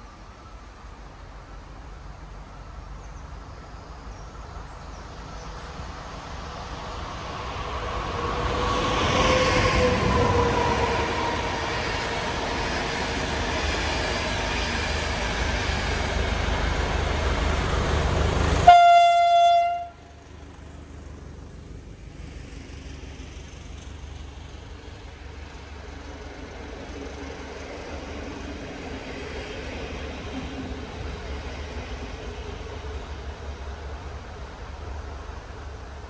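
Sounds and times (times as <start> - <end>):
diesel train passing: 0.0 - 36.0
train passing loudly: 0.0 - 36.0
locomotive horn blast: 18.6 - 20.2.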